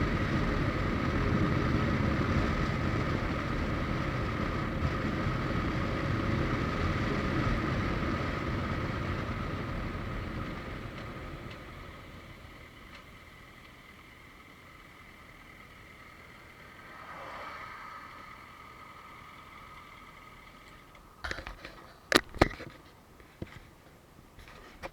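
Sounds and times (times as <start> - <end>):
motorcycle engine and road noise: 0.0 - 24.9
wind rush: 16.6 - 19.7.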